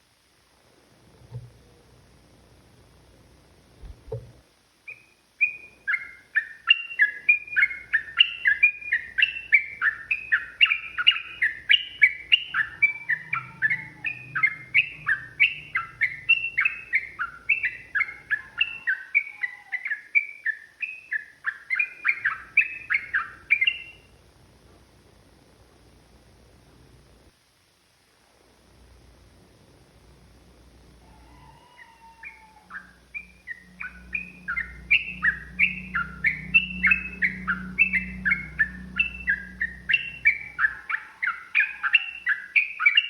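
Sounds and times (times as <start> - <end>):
bulbul singing bubbly chirps: 4.9 - 24.1, 32.2 - 43.0.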